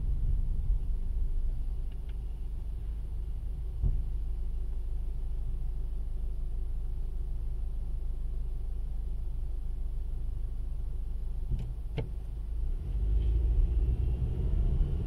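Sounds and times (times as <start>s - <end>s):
car engine idling: 0.0s - 12.8s
short low thump: 3.6s - 4.3s.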